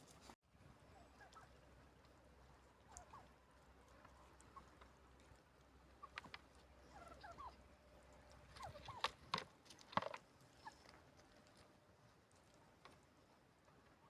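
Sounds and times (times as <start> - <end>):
chickens clucking: 6.0 - 7.6.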